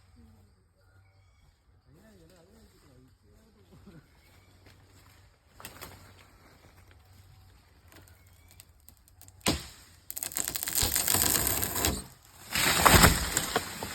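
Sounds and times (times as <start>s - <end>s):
branches crackling and crashing: 5.5s - 7.1s, 7.8s - 13.9s.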